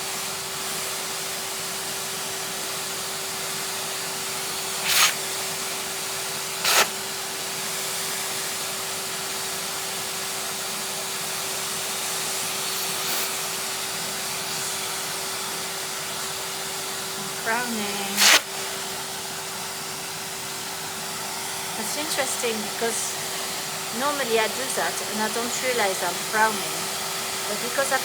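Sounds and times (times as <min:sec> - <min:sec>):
vacuum cleaner running: 0:00.0 - 0:28.0
vacuum air rushes: 0:04.4 - 0:07.3, 0:12.0 - 0:23.9.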